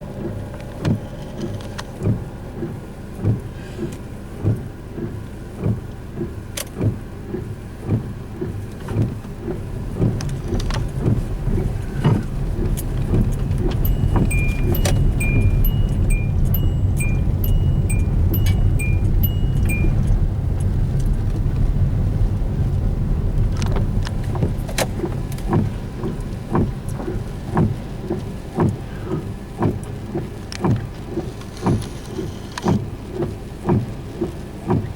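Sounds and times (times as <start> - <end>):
high chime-like tones: 13.8 - 20.2.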